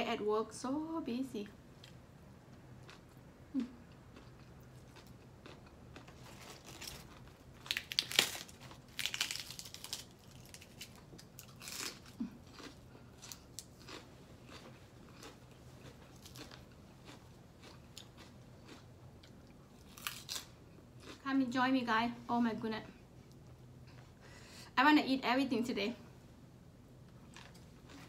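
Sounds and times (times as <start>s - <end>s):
person chewing crunchy food: 1.8s - 21.2s, 27.2s - 28.0s.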